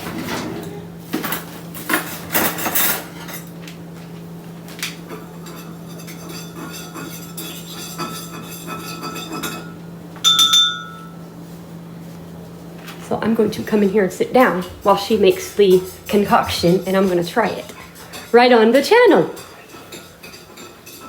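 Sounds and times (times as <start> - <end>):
cups and utensils clinking: 5.0 - 11.2, 13.6 - 21.0
loud ringing clink: 9.0 - 11.2.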